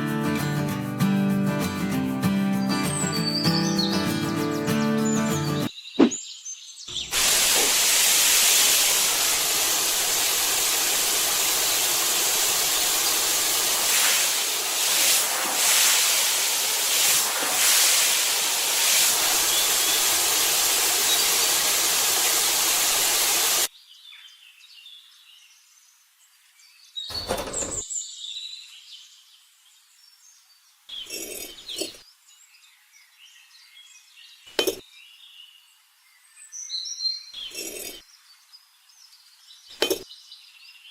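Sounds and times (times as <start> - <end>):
loud hissing rush: 7.0 - 23.7.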